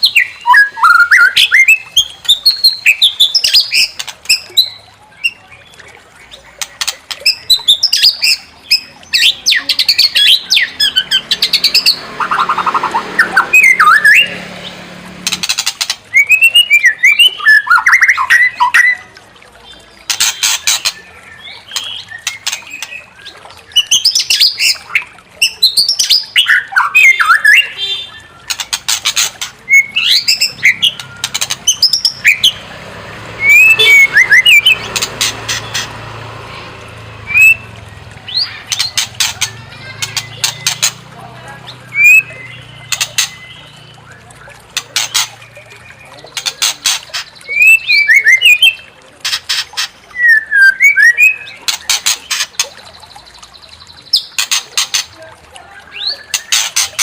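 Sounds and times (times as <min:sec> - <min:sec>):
bird singing gliding whistles: 0:00.0 - 0:05.4, 0:16.1 - 0:19.1, 0:33.4 - 0:34.8, 0:37.3 - 0:37.7, 0:41.8 - 0:44.6, 0:47.4 - 0:48.9, 0:50.1 - 0:51.6
harsh rattling bird chatter: 0:01.2 - 0:18.9, 0:19.6 - 0:50.3, 0:51.2 - 0:57.0.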